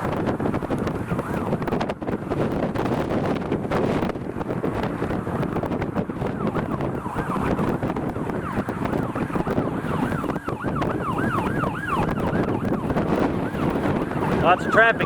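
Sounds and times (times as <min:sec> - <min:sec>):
wind buffeting microphone: 0:00.0 - 0:15.0
siren yelping: 0:00.6 - 0:15.0.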